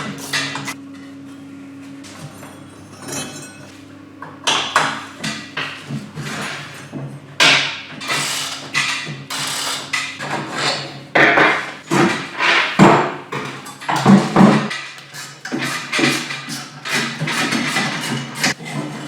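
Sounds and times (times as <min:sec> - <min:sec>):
hand tools clanking on metal: 0:00.0 - 0:00.8.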